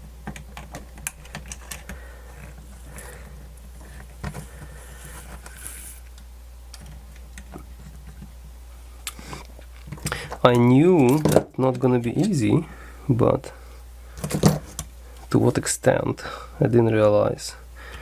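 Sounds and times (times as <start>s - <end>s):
steady low hum: 0.0s - 18.0s
small parts clicking and tapping: 0.2s - 2.5s.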